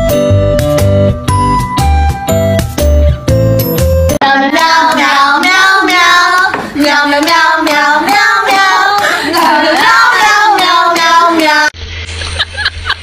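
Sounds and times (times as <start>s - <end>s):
high child-like voice singing: 4.2s - 11.8s.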